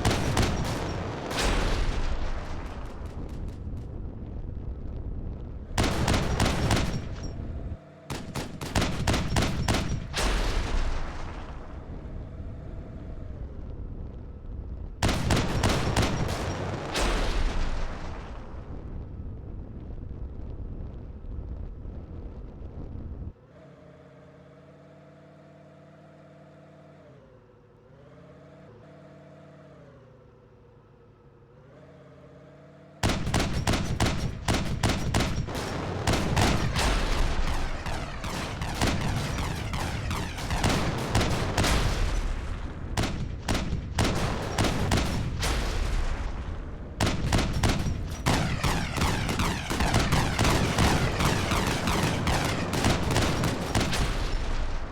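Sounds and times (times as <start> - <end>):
exhaust backfires: 0.0 - 4.9, 5.6 - 19.1, 32.5 - 54.9.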